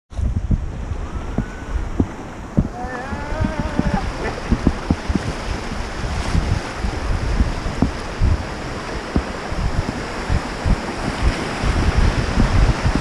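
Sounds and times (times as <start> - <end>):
rushing river water: 0.1 - 13.0
wind buffeting microphone: 0.1 - 13.0
short knocks: 1.4 - 5.3
wavering high-pitched cry: 2.7 - 4.4.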